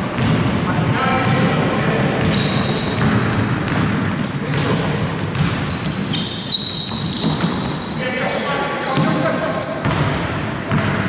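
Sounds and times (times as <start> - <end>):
basketball bouncing: 0.0 - 0.6, 1.2 - 1.6, 2.2 - 6.2, 6.9 - 7.8, 9.8 - 11.0
sneaker squeaks: 0.1 - 1.4, 2.2 - 11.0.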